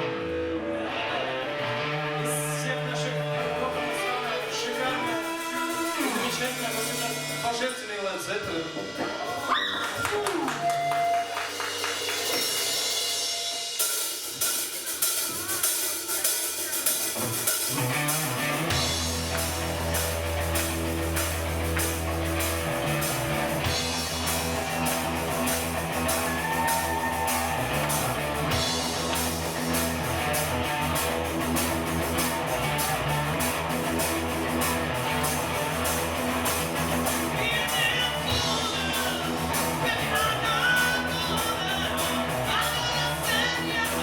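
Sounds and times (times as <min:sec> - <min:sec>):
bass line: 0:00.0 - 0:07.7, 0:16.8 - 0:44.0
guitar: 0:00.0 - 0:44.0
drum kit: 0:02.7 - 0:44.0.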